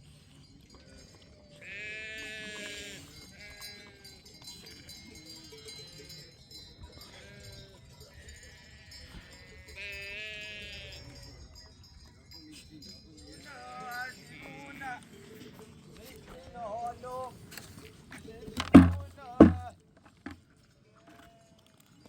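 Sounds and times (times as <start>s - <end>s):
sheep bleating: 1.6s - 3.8s.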